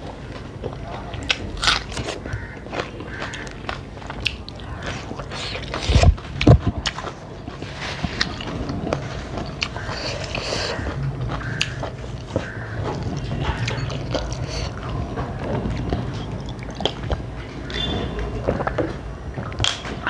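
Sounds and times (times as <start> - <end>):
person chewing: 0.3 - 17.8.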